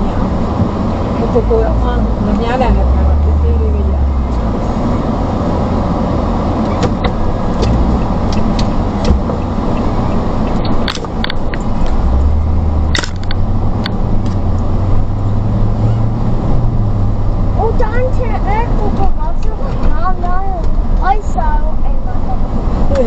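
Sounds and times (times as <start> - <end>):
road and engine noise inside car: 0.0 - 23.0
sharp clicks and knocks: 6.6 - 14.7.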